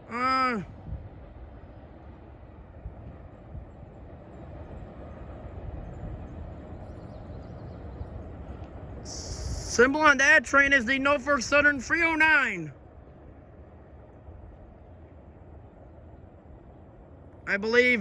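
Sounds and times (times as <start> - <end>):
train rumbling on rails: 0.0 - 18.0
high voice-like call: 9.1 - 9.9.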